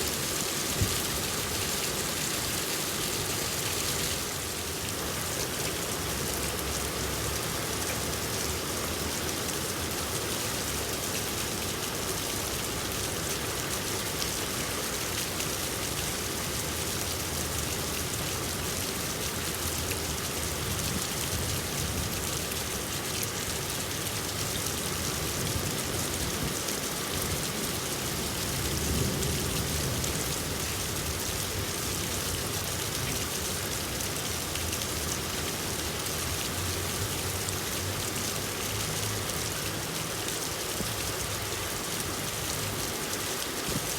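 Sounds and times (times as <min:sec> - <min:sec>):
rain pattering on surfaces: 0:00.0 - 0:43.9.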